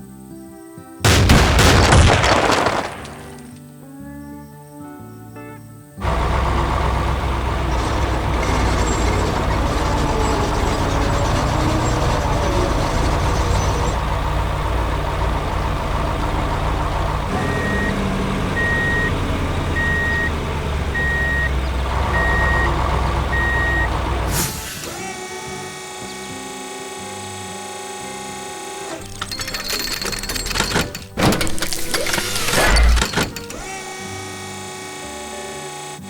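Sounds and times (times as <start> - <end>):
heavy vehicle engine rumbling: 6.0 - 34.0
reversing alarm beeping: 17.3 - 26.4.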